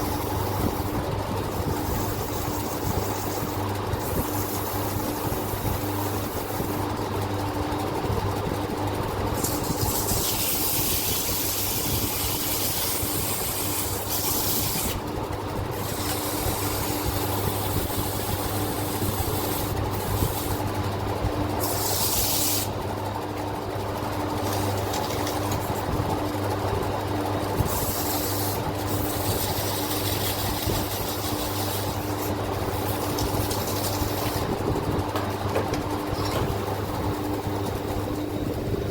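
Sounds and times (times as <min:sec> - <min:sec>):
steady machine hum: 0:00.0 - 0:38.9
sandpaper scrubbing metal: 0:09.4 - 0:15.0, 0:21.6 - 0:22.7, 0:27.6 - 0:34.6.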